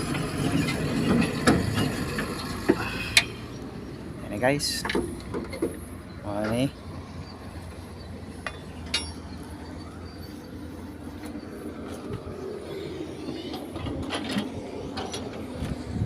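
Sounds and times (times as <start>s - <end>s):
sharp clicks and knocks: 4.8s - 5.8s.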